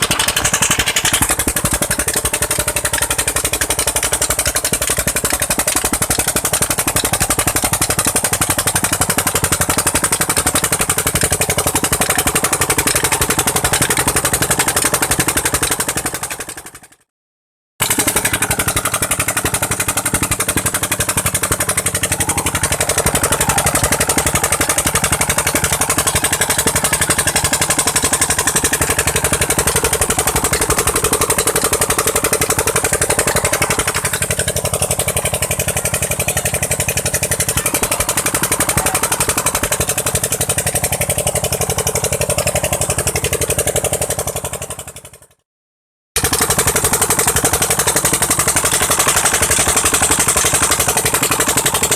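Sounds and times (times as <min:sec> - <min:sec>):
engine exhaust beat: 0:00.0 - 0:17.1, 0:17.8 - 0:45.4, 0:46.2 - 0:51.9.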